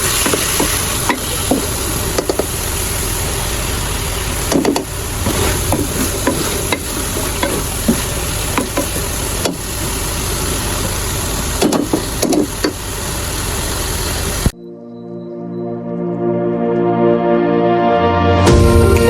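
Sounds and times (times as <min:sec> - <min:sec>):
food sizzling in a hot pan: 0:00.0 - 0:14.4
spoon scraping against pot: 0:04.6 - 0:09.7.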